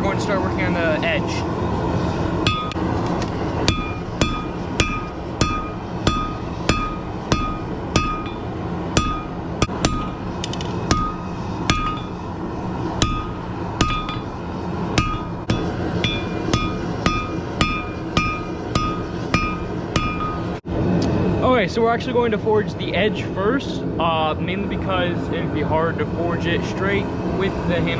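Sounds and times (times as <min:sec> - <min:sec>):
low rumble: 0:00.0 - 0:27.9
hammer striking metal on anvil: 0:02.4 - 0:20.6.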